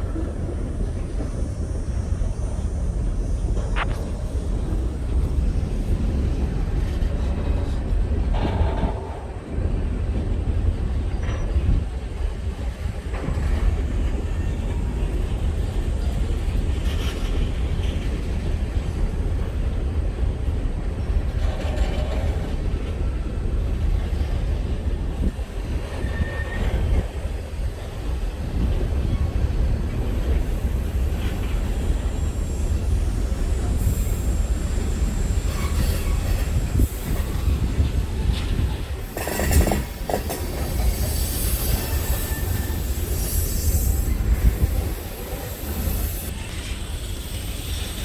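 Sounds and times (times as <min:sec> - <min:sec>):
train wheels rumbling on rails: 0:00.0 - 0:48.0
wheel squeals: 0:25.8 - 0:27.4, 0:31.2 - 0:48.0.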